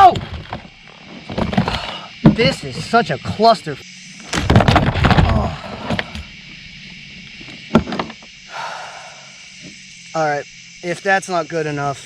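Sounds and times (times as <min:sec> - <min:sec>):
sharp knocks against hull: 0:00.0 - 0:03.0, 0:04.3 - 0:06.3, 0:07.7 - 0:08.2.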